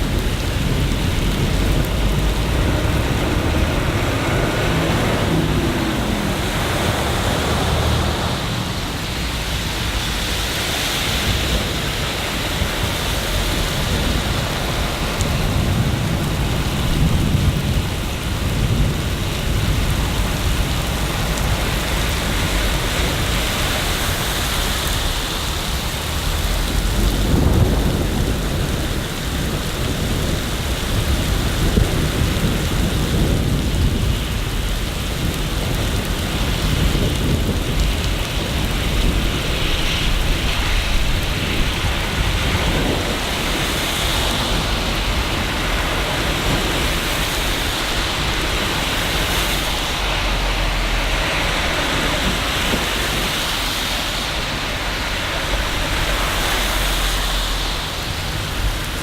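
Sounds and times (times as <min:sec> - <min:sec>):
heavy rain falling: 0:00.0 - 0:59.0
low rumbles: 0:00.0 - 0:59.0.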